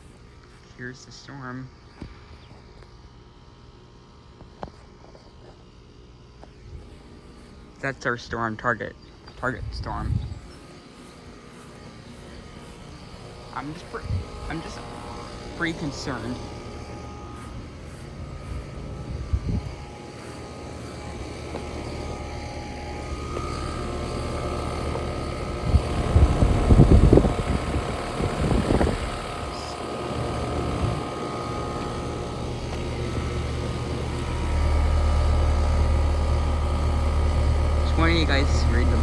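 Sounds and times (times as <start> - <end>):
steady mechanical hum: 0.0 - 39.0
rough rumbling bursts: 12.4 - 29.6.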